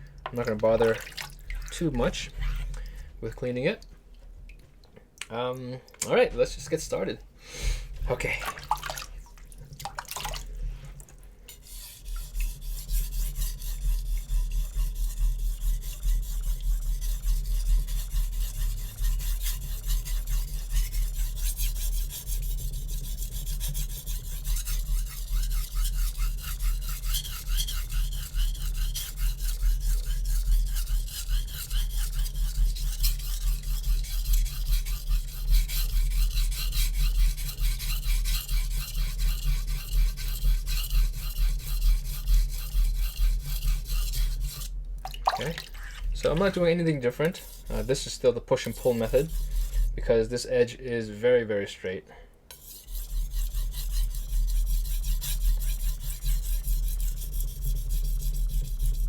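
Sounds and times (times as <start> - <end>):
knife scraping on whetstone: 11.5 - 44.7, 45.8 - 50.1, 52.5 - 59.0.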